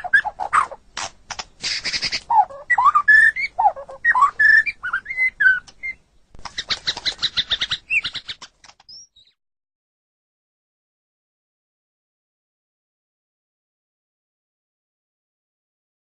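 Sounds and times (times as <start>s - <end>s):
bird whistling song: 0.0s - 0.8s, 1.6s - 9.4s
bird harsh chattering: 0.0s - 9.1s.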